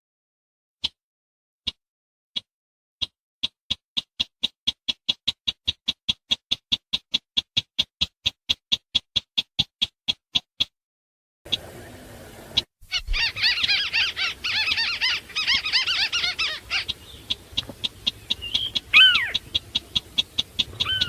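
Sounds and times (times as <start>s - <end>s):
faint hiss: 11.5s - 12.7s
crake calling: 11.5s - 21.0s.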